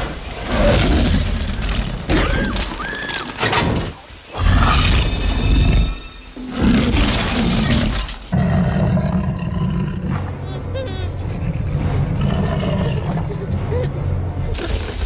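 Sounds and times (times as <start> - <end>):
arching screeches: 0.0 - 8.3
dramatic music: 4.0 - 15.0
deep dinosaur roars: 6.5 - 10.2, 11.3 - 13.4.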